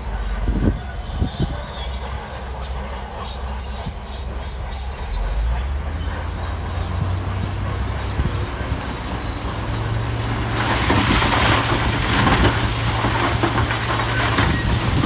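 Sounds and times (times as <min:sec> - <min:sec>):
diesel engine drone: 0:00.0 - 0:15.0
steel tracks clanking and squealing: 0:00.0 - 0:15.0.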